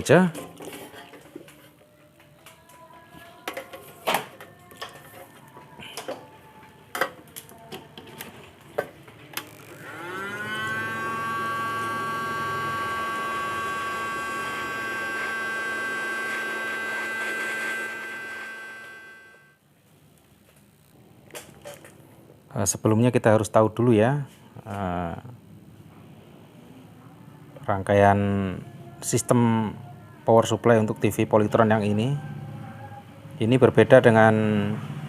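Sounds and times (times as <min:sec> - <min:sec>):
electric blower motor whine: 0:09.4 - 0:19.6.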